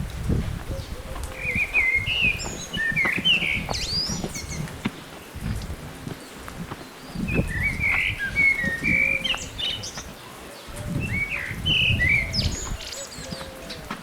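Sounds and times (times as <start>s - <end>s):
songbird chirping: 0.7s - 14.0s.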